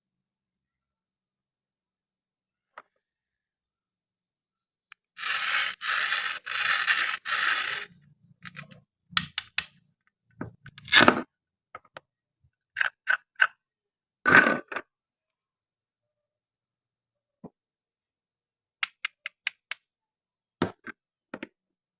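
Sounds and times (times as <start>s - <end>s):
small objects clicking: 4.9s - 9.7s
rasping scraping strokes: 5.1s - 8.8s.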